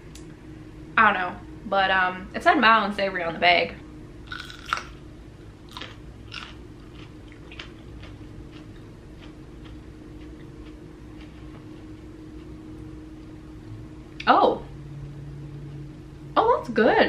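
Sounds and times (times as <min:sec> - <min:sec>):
faint steady hum: 0:00.0 - 0:17.0
crunchy bite and chewing: 0:04.3 - 0:05.0, 0:05.7 - 0:11.6.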